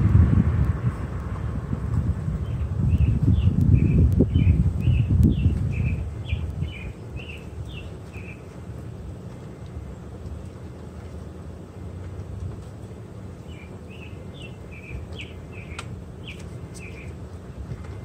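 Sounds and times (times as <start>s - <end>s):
low rumble: 0.0s - 10.9s
small bird chirping: 2.4s - 8.5s, 13.4s - 17.2s.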